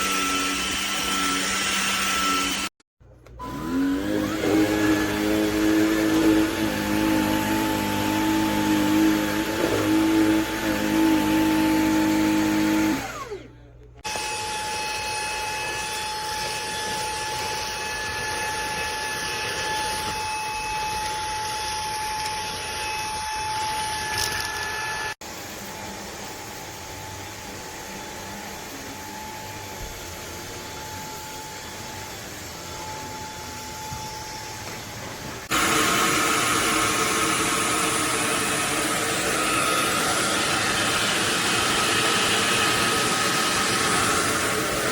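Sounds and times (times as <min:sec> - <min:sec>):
stick vacuum motor whining: 0:00.0 - 0:25.2, 0:32.6 - 0:44.9.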